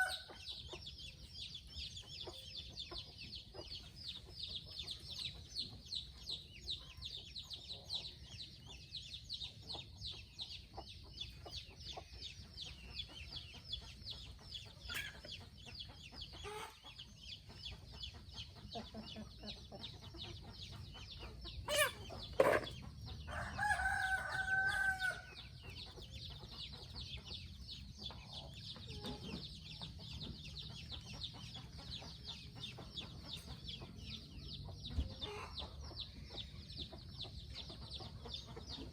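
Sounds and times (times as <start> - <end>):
chickens clucking: 0.0 - 38.9
rooster crowing: 23.3 - 25.3.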